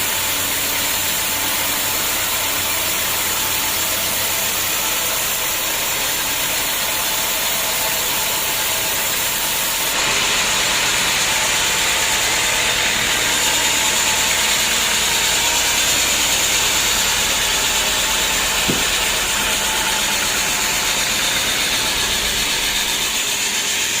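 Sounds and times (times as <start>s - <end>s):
sawmill machinery running: 0.0s - 24.0s
sharp knock: 18.6s - 19.4s.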